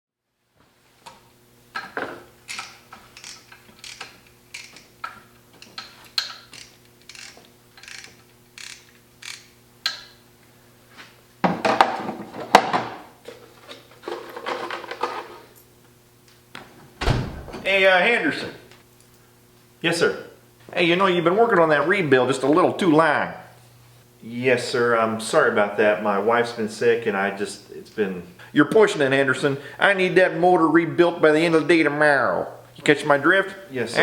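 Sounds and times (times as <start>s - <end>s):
ratchet wrench clicking: 2.5s - 4.8s, 5.7s - 10.1s
steady low hum: 13.1s - 34.0s.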